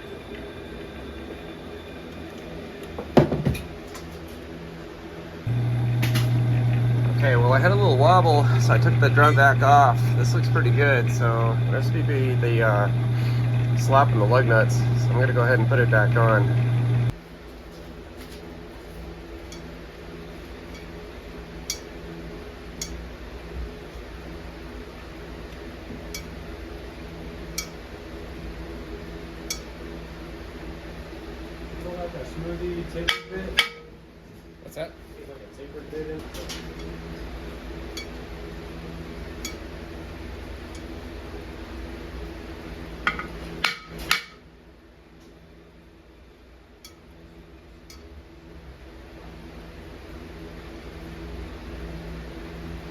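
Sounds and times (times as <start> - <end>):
machine hum: 0.0 - 17.3
low steady hum: 0.0 - 36.1.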